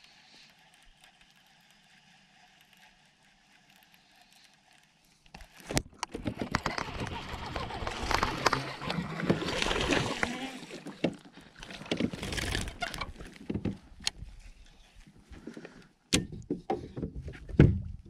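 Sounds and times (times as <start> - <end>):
water splashing around a kayak: 4.7 - 15.1
knocks and thumps on a kayak: 9.2 - 14.0, 16.1 - 18.0.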